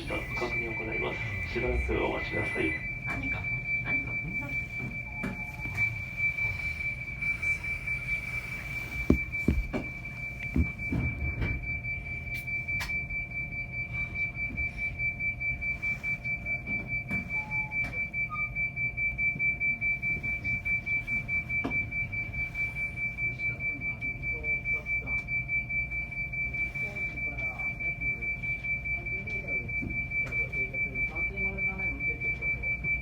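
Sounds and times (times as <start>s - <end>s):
pulsing high alarm tone: 0.0s - 33.0s
knocks: 9.1s - 9.9s.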